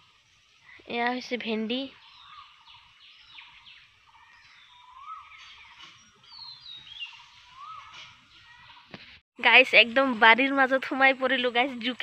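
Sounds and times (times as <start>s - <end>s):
birds chirping: 0.0s - 12.0s
bird whistles: 4.8s - 8.1s.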